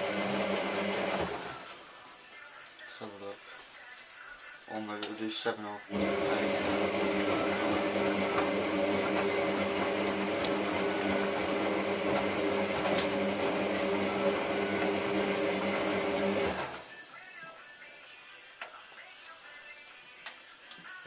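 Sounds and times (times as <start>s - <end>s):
washing machine hum and whir: 5.9s - 16.8s.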